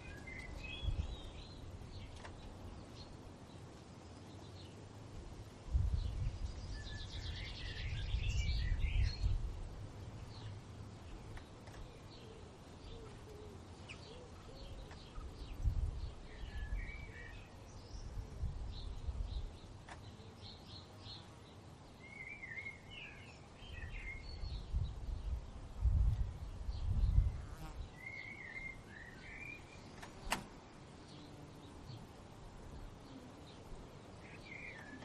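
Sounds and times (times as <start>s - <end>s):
songbirds chirping and singing: 0.0s - 5.0s, 6.0s - 25.4s, 26.1s - 35.0s
wind gusting on microphone: 0.5s - 2.1s, 5.2s - 10.4s, 14.7s - 17.2s, 17.8s - 19.6s, 23.8s - 27.9s.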